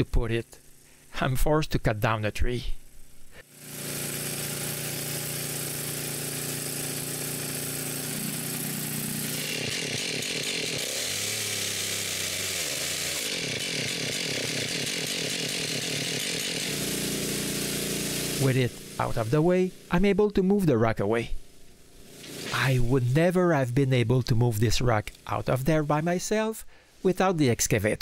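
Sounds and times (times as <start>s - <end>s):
chainsaw cutting tree: 3.4s - 19.9s, 21.8s - 23.0s.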